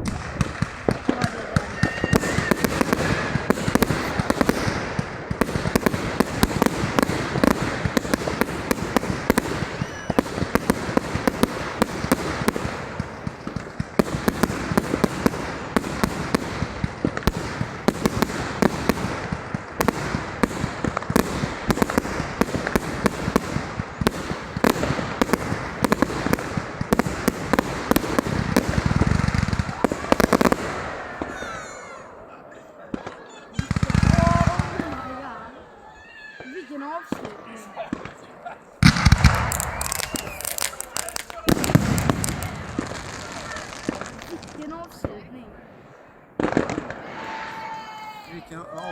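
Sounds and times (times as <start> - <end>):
firework cake firing: 0.0 - 48.2.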